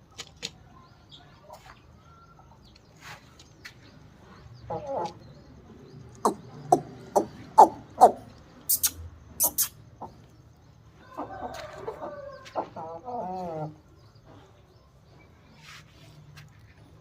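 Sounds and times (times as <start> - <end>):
chickens clucking: 0.0 - 17.0
chickens wavering calls: 4.6 - 14.0.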